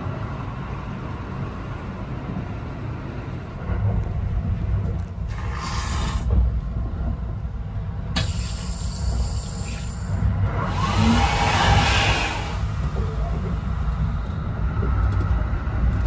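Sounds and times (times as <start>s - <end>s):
train low rumble: 0.0s - 16.0s
rushing hiss bursts: 8.2s - 12.8s.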